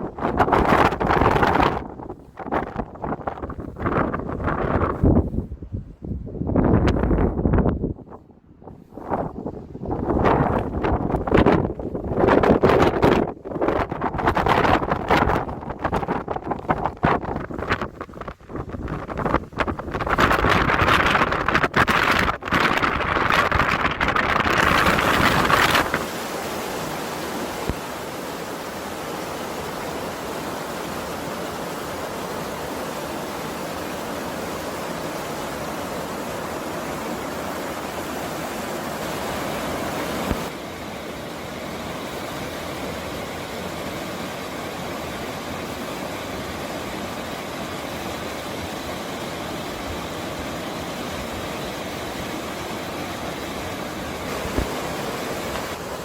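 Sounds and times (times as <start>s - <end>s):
wind buffeting microphone: 0.0s - 27.8s
stream rushing: 9.0s - 56.0s.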